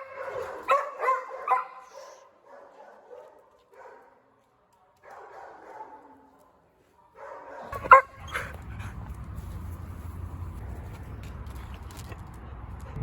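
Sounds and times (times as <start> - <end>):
dog barking: 0.0 - 4.2, 5.0 - 6.3, 7.0 - 8.6.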